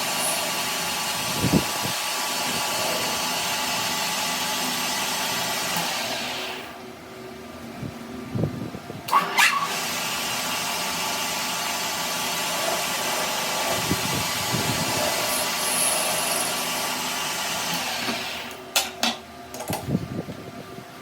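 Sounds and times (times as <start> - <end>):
power tool running on metal: 0.0 - 6.8, 9.1 - 18.8.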